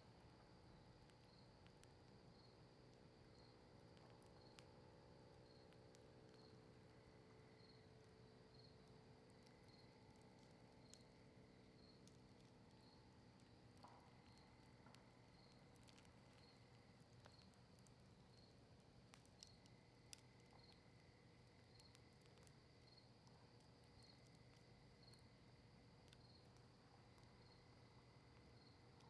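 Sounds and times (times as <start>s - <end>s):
campfire crackling: 0.0s - 29.0s
fire popping: 8.8s - 27.4s.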